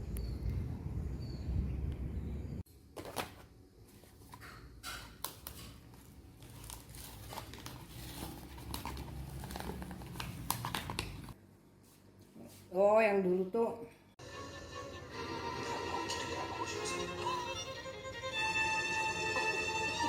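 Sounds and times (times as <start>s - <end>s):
packaging crinkling and tearing: 5.2s - 11.4s.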